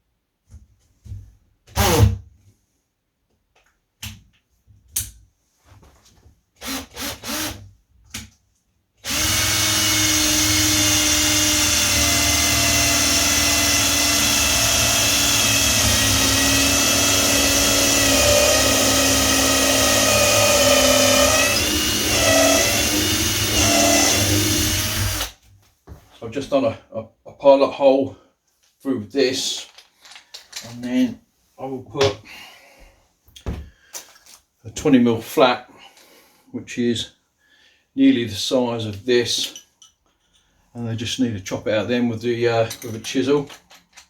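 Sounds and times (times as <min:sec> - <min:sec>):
power drill whining: 0:06.6 - 0:07.6, 0:09.0 - 0:25.4.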